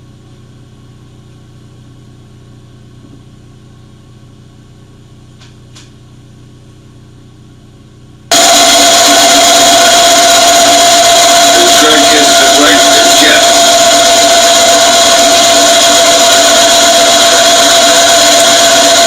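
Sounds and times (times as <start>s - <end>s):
machine shop hum: 8.2s - 19.0s
machine tool cutting steel whine: 8.3s - 19.0s.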